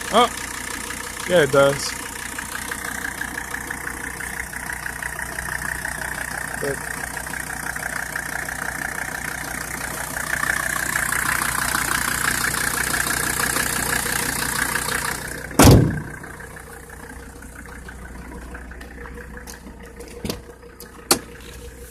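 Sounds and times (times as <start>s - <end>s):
diesel engine idling: 0.0s - 21.9s
loud thump: 15.5s - 16.2s.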